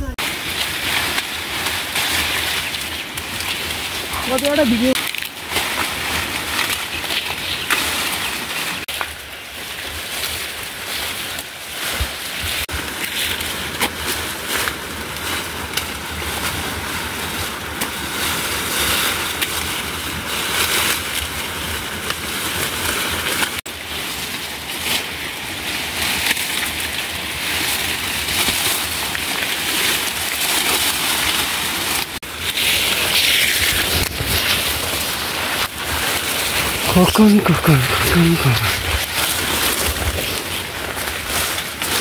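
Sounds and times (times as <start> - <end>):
heavy rain falling: 27.4 - 42.0.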